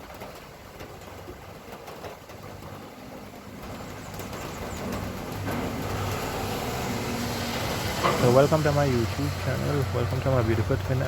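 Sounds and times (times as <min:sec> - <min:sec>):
vehicle engine approaching: 0:02.6 - 0:11.0.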